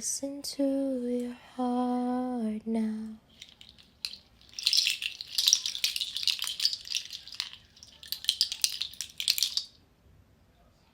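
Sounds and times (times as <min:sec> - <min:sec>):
percussion shaker rattling: 0:03.3 - 0:09.8.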